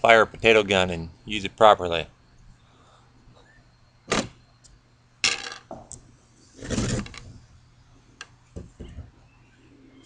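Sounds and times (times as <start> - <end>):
rattling scrape: 6.6 - 7.4.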